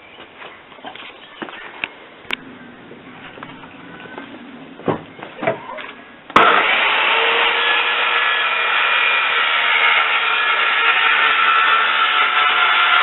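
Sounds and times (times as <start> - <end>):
power tool whirring: 6.4 - 13.0.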